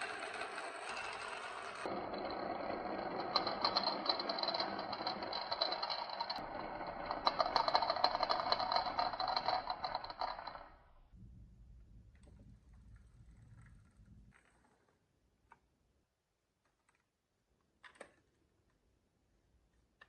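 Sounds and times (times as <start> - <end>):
marbles clattering down wooden run: 0.0 - 10.7.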